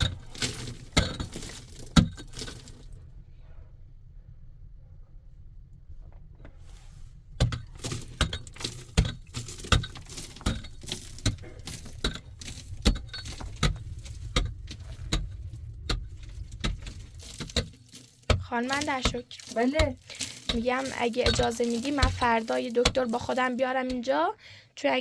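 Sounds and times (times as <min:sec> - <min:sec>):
clinks and knocks: 0:00.0 - 0:02.9, 0:07.4 - 0:24.1
low rumble: 0:00.0 - 0:07.8, 0:09.2 - 0:18.6.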